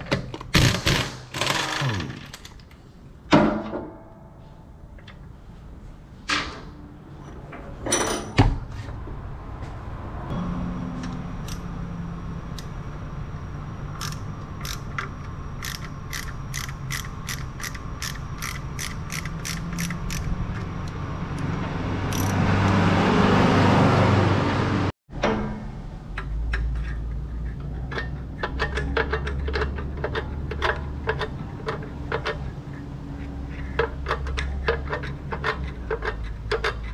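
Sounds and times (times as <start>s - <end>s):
workshop tool humming and clicking: 10.9s - 13.1s, 13.8s - 22.8s.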